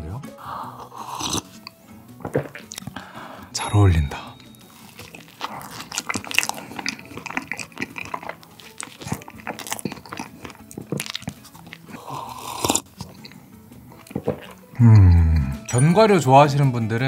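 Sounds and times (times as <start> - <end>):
biting and chewing soft bun: 0.8 - 3.1, 4.3 - 15.7
small wet mouth clicks: 2.4 - 3.0, 4.7 - 13.4.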